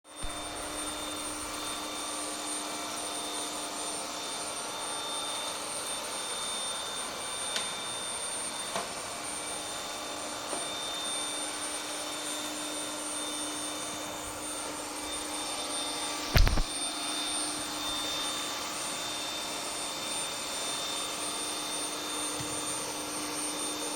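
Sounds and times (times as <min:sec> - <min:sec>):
robot vacuum whirring: 0:00.2 - 0:01.8, 0:16.3 - 0:16.7.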